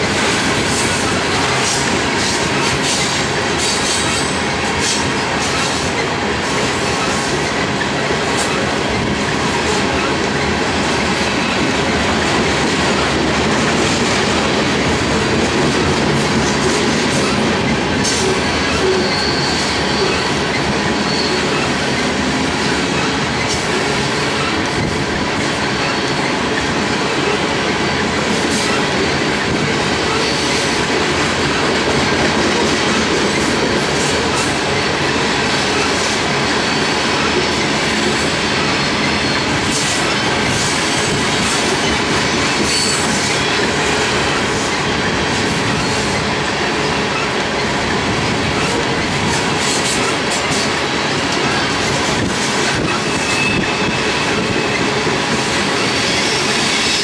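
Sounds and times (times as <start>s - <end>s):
steel wheels rumbling on rail: 0.0s - 57.0s
high wheel squeal: 17.1s - 24.9s, 25.6s - 26.4s, 35.6s - 46.2s, 52.8s - 57.0s.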